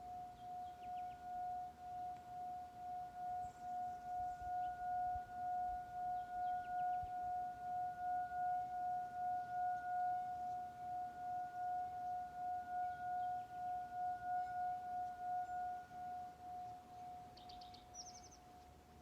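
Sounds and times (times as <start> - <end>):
faint bird chirps: 0.0 - 19.0
singing bowl ringing: 0.0 - 19.0.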